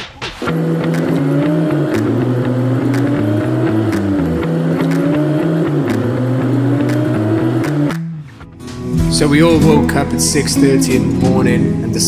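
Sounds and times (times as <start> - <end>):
music with bass and beat: 0.0 - 12.0
racing car engine revving: 0.4 - 8.4.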